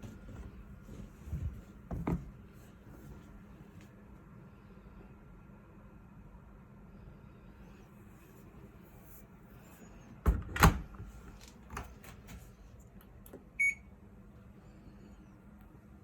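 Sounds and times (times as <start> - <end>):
knocks on washing machine: 10.2 - 10.9.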